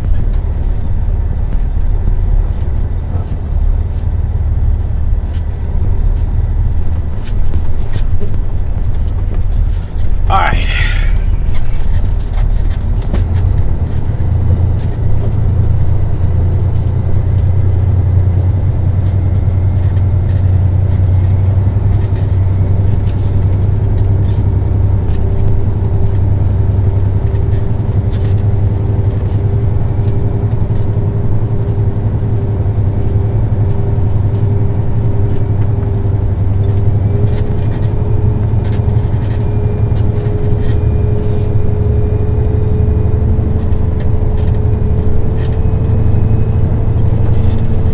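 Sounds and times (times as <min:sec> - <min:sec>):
rising whine: 0:00.0 - 0:23.1
truck diesel engine rumble: 0:00.0 - 0:47.9.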